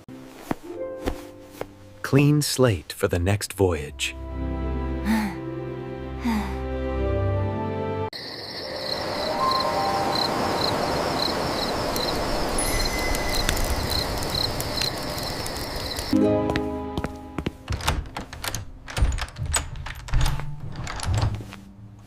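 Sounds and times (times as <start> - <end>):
crickets chirping: 8.1 - 16.2.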